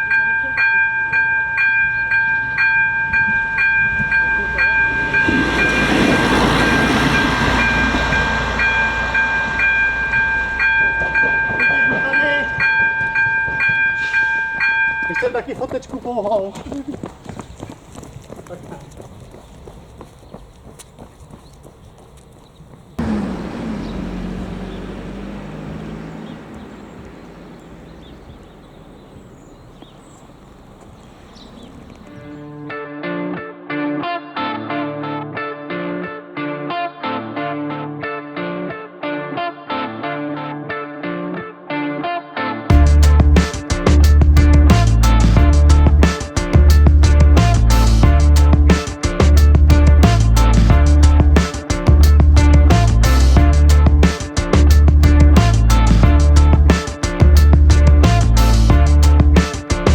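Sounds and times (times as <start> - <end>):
railbus running over crossing: 0.0 - 15.4, 22.8 - 32.4, 42.7 - 59.9
railroad crossing bell ringing: 0.0 - 15.6.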